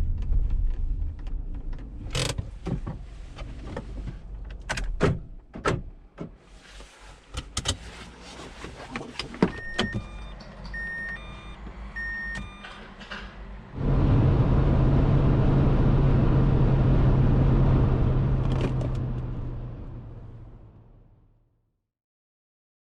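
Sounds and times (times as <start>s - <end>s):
clicks and knocks inside car: 0.0s - 6.4s
car engine starting and running: 0.0s - 21.5s
short electronic beeps: 9.6s - 12.7s.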